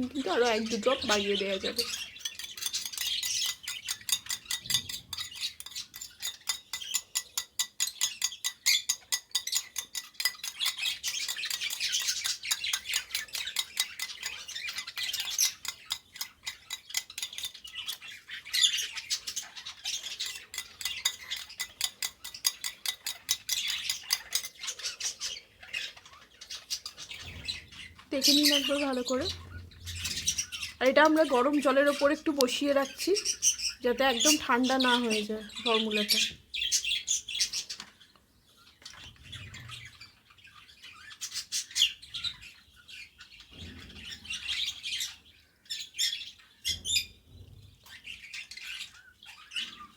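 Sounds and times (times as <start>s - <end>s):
birds squawking and chirping: 0.0s - 49.9s
spoon clicking against bowl: 2.2s - 11.8s.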